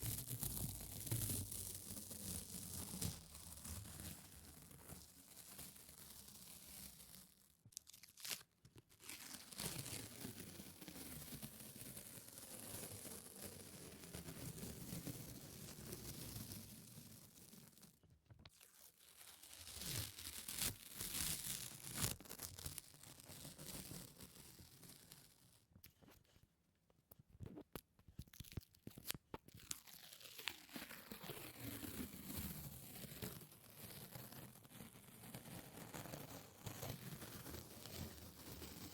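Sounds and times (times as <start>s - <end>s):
sticky surface peeling with crackling: 7.7s - 10.0s, 27.5s - 31.7s.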